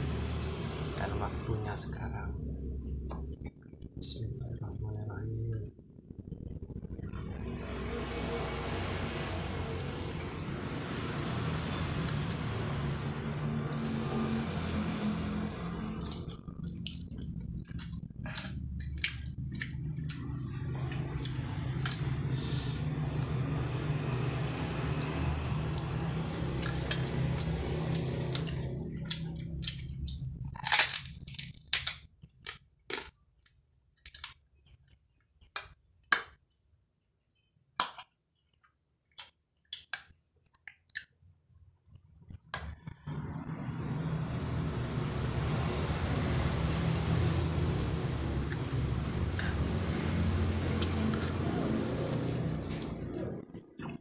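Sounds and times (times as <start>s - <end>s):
steady low hum: 0.0s - 31.6s, 41.9s - 54.0s
crunching while chewing: 12.0s - 22.3s, 25.6s - 34.5s, 46.7s - 54.0s.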